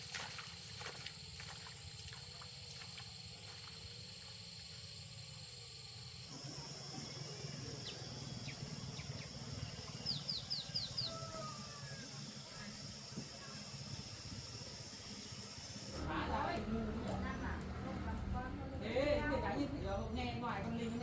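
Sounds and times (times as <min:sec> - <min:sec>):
insects trilling: 0:00.0 - 0:21.0
bird chirping: 0:06.9 - 0:11.6.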